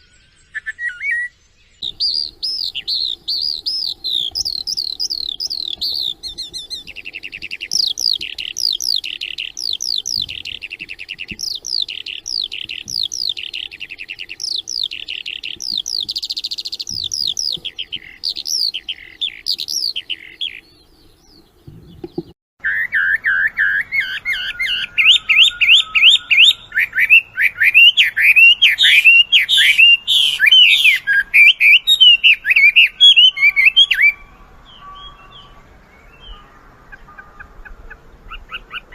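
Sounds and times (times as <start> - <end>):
songbird chirps and trills: 0.0 - 38.9
low thump: 16.9 - 17.7.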